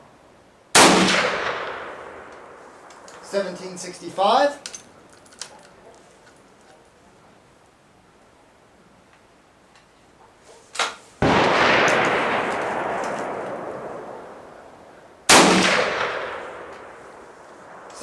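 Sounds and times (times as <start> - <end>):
rifle shot: 0.7 - 2.6, 10.8 - 14.7, 15.3 - 18.0.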